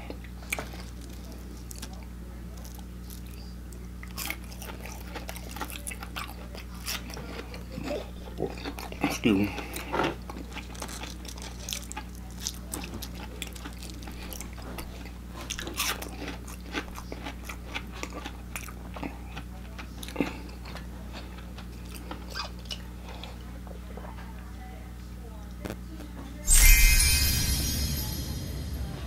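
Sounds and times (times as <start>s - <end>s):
crunchy food chewing: 0.0s - 24.0s
steady low hum: 25.6s - 29.0s.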